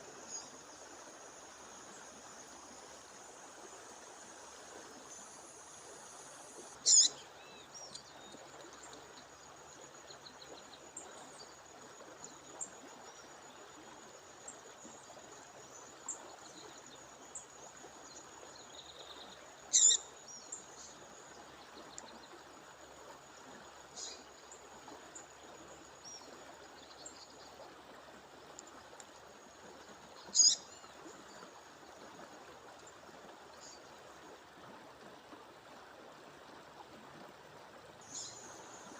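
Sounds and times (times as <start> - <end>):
high bird calls: 6.8 - 7.2, 19.7 - 20.0, 30.4 - 30.6
faint bird chirps: 6.8 - 8.4, 18.7 - 21.0, 30.2 - 31.4, 38.0 - 38.8.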